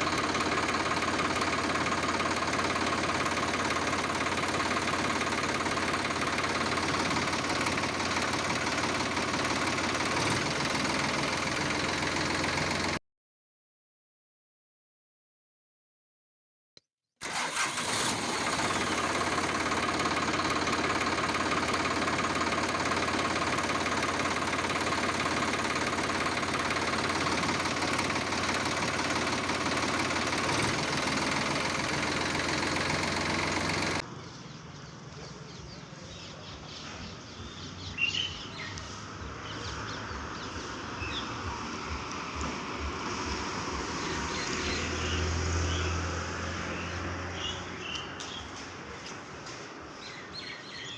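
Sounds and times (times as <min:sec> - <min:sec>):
motor running: 0:00.0 - 0:13.0, 0:17.2 - 0:34.1, 0:37.8 - 0:48.6
bird chirps: 0:34.1 - 0:42.5, 0:43.8 - 0:46.1, 0:46.7 - 0:48.6, 0:50.0 - 0:50.9.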